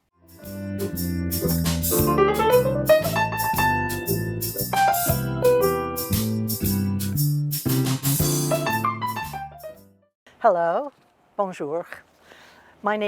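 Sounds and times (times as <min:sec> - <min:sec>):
piano music: 0:00.2 - 0:10.1.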